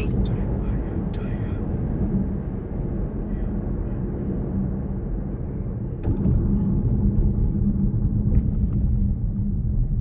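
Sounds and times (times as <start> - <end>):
car tyres and engine rumble: 0.0 - 10.0.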